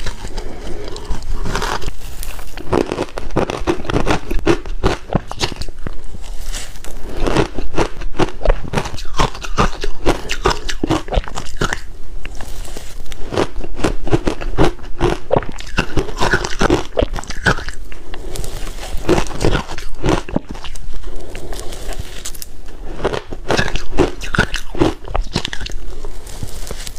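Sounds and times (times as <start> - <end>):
ice being chewed: 0.0 - 26.9.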